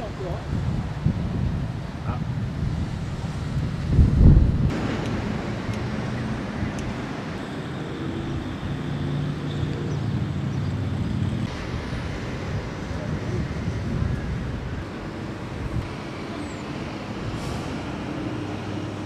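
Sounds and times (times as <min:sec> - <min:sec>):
wind on microphone: 0:00.0 - 0:07.4, 0:09.8 - 0:19.0
engine drone: 0:04.3 - 0:19.0.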